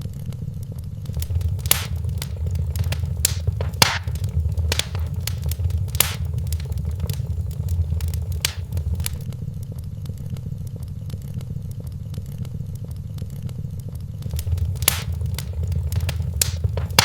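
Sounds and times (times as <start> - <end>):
wood fire crackling: 1.1 - 9.3, 14.2 - 17.0.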